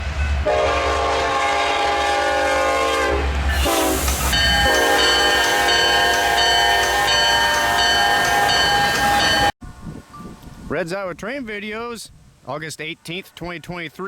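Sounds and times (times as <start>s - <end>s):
locomotive air horn blasts: 0.4s - 9.5s.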